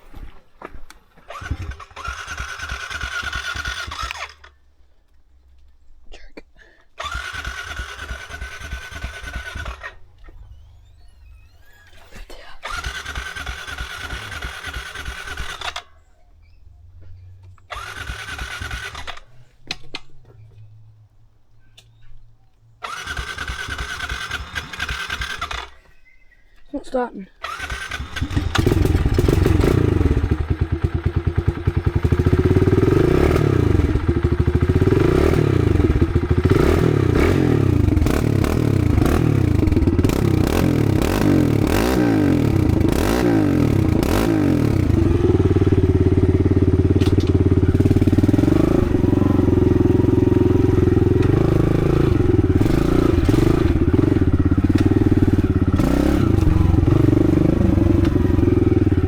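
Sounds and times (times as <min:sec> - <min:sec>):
dirt bike engine revving: 0:01.3 - 0:04.6, 0:07.0 - 0:10.1, 0:12.7 - 0:15.9, 0:17.7 - 0:19.3, 0:22.8 - 0:25.8, 0:27.4 - 0:59.0.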